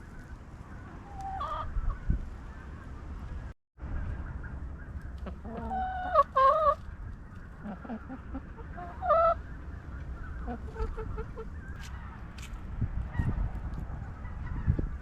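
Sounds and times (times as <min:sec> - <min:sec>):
chickens clucking and calling: 0:00.6 - 0:02.8, 0:04.8 - 0:12.3.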